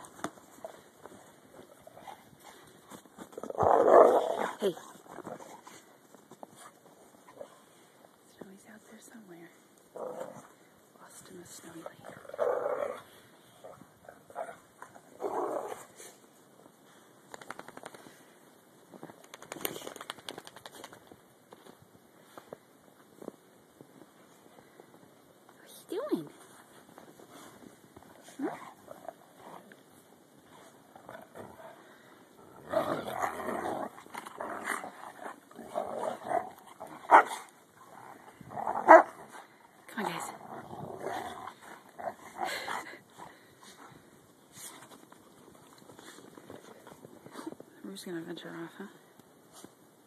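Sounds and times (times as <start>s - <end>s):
dogs growling and barking: 3.3s - 5.9s, 9.9s - 10.6s, 12.1s - 16.0s, 30.4s - 43.5s
rapid crackling clicks: 17.2s - 18.3s, 19.1s - 21.1s.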